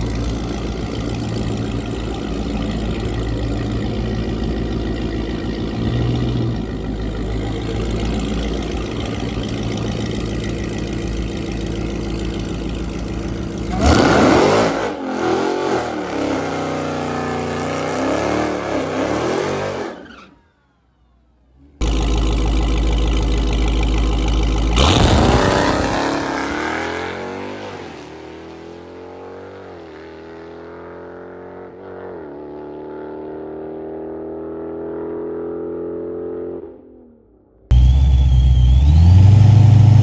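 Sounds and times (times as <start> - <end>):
car launching and shifting gears: 0.0 - 28.6, 37.7 - 40.0
car engines running loud: 0.0 - 30.4, 37.7 - 40.0.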